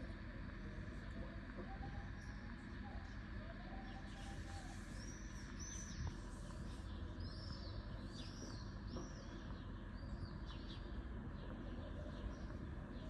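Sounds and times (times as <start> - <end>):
small birds chirping: 1.0 - 13.0
low background rumble: 4.3 - 13.0.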